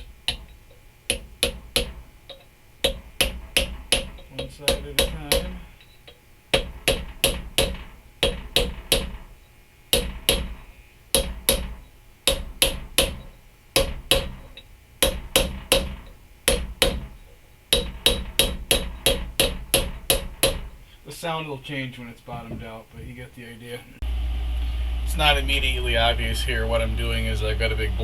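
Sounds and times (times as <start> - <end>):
hammer striking metal: 0.0 - 9.3, 9.9 - 20.8.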